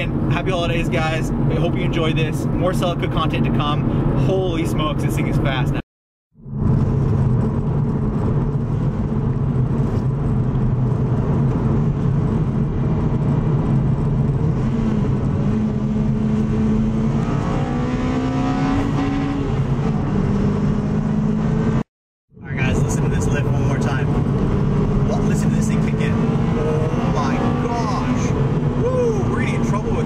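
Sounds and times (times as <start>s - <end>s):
car engine revving through gears: 6.6s - 21.8s, 23.2s - 30.0s.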